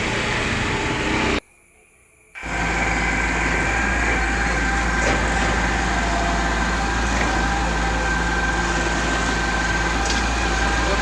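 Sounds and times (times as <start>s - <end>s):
machinery engine humming: 0.0s - 11.0s
steady whine: 0.0s - 11.0s.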